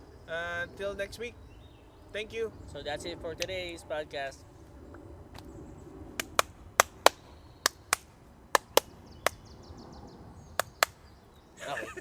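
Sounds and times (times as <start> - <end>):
sharp short clicks: 10.6 - 11.0.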